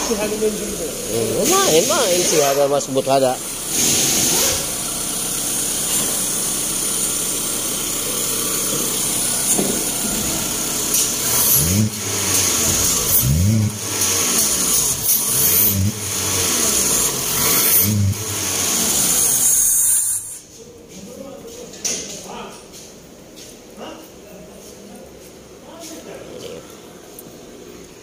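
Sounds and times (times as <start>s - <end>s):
car engine running and revving: 0.0s - 20.4s.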